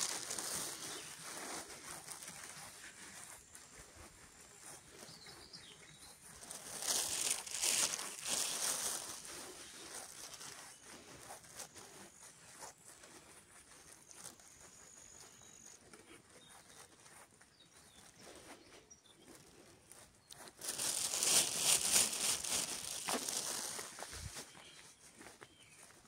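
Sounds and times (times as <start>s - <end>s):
footsteps through dry vegetation: 0.0s - 26.0s.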